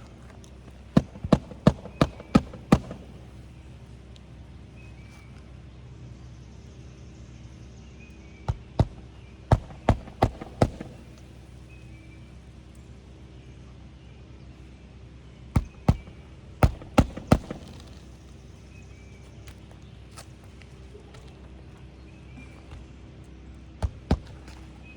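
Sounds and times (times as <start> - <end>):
hammer driving roofing nails: 0.0 - 3.4, 8.5 - 11.4, 15.6 - 18.1, 23.8 - 24.7.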